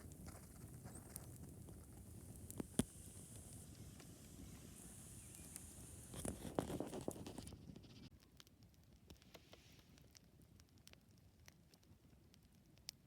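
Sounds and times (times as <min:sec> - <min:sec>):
faint hiss: 0:00.0 - 0:08.2, 0:09.0 - 0:10.6
campfire crackling: 0:00.0 - 0:13.0.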